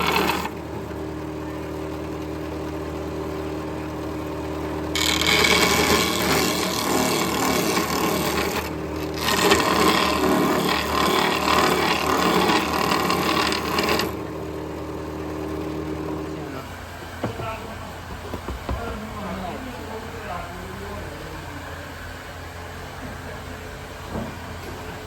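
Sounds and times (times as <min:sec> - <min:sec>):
power tool cutting wood: 0:00.0 - 0:00.6, 0:04.8 - 0:14.6
machine motor humming: 0:00.0 - 0:25.0.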